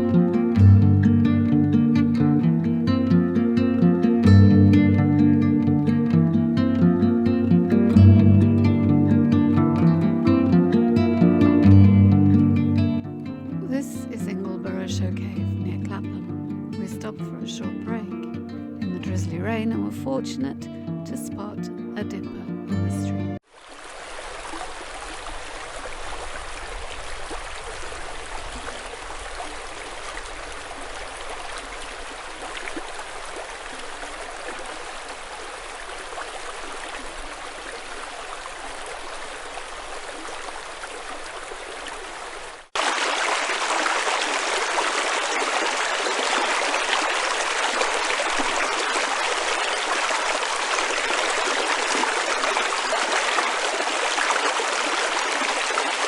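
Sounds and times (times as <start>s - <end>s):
stream water over stones: 23.4s - 56.0s.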